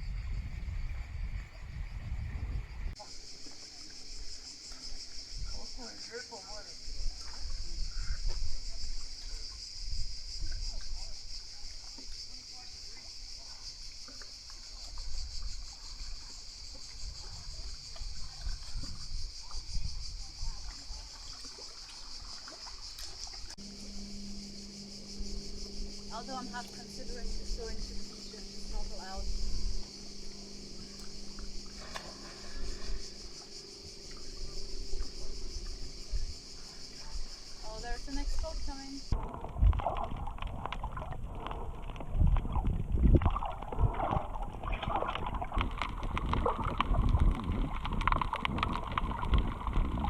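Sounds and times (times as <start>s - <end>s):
wind rumble on microphone: 0.0s - 3.0s, 6.8s - 12.2s, 14.7s - 21.4s, 22.9s - 50.0s
high-pitched buzzing hiss: 0.0s - 39.3s
high-pitched insect chorus: 0.0s - 50.0s.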